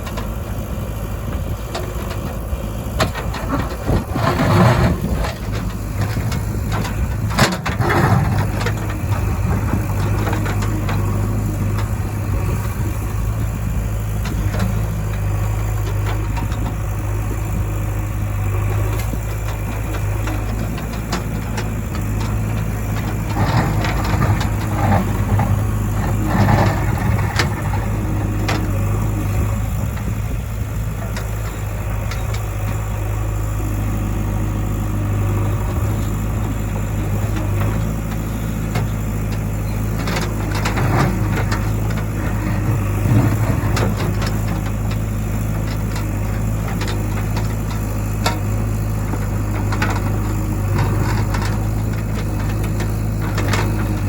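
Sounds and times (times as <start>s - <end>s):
diesel engine running: 0.0s - 54.0s
clanking and knocking: 1.4s - 30.2s.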